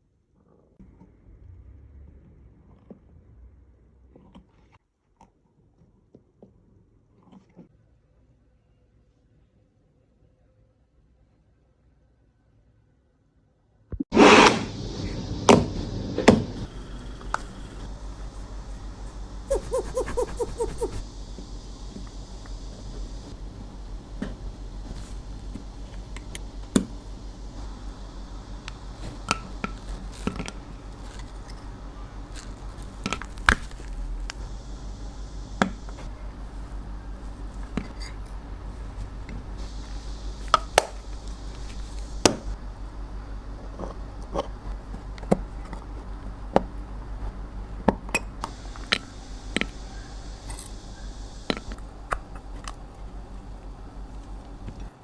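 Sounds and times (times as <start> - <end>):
low steady hum: 14.6 - 55.0.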